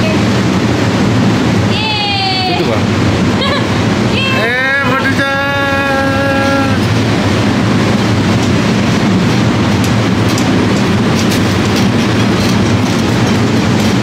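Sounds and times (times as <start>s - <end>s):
vehicle rattling: 5.2s - 14.0s
scattered clicks: 9.3s - 14.0s.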